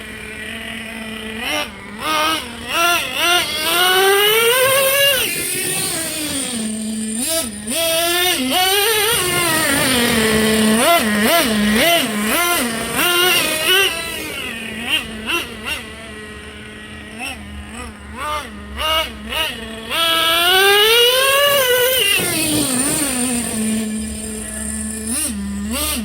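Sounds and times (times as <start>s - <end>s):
model truck engine revving: 0.0s - 26.0s.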